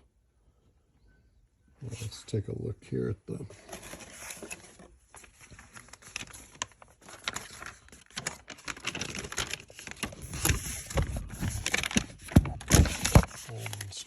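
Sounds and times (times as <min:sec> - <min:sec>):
paper rustling and crinkling: 0:03.4 - 0:14.0.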